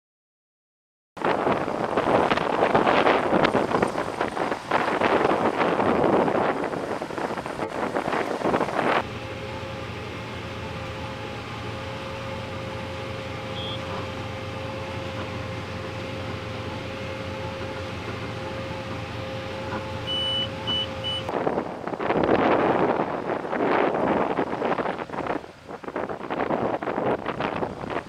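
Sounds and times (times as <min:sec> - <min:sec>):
wind noise on microphone: 0:01.2 - 0:09.1, 0:21.0 - 0:28.0
farm harvest machinery drone: 0:01.2 - 0:28.0
brief high tone: 0:13.4 - 0:14.3, 0:19.7 - 0:21.3
short beeps: 0:13.5 - 0:14.0, 0:20.0 - 0:21.3.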